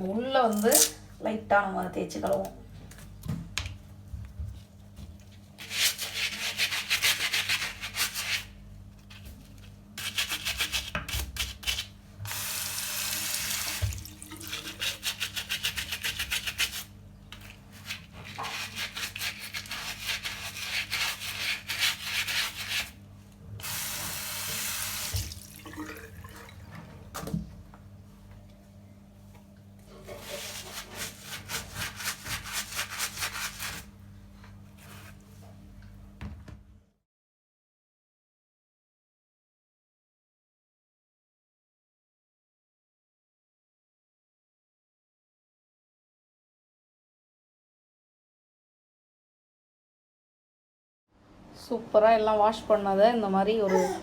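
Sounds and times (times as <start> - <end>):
water running: 12.3 - 15.3, 23.6 - 27.1
stiff brush scrubbing shoe: 14.5 - 16.9, 17.8 - 22.9, 30.2 - 33.8.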